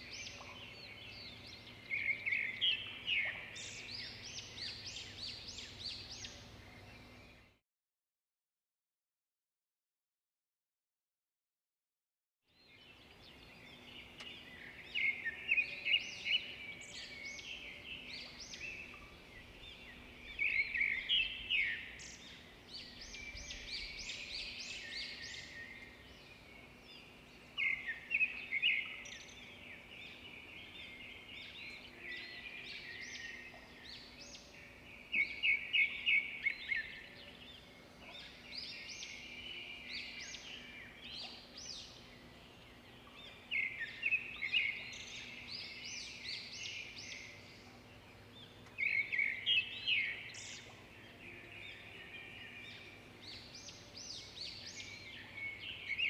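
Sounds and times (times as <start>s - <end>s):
birds chirping: 12.6s - 56.0s
faint steady hum: 12.8s - 56.0s.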